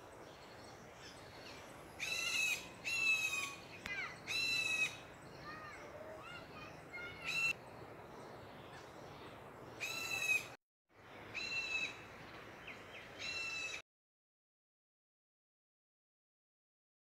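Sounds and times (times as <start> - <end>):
steady background hiss: 0.0 - 13.8
bird calling: 1.0 - 7.6.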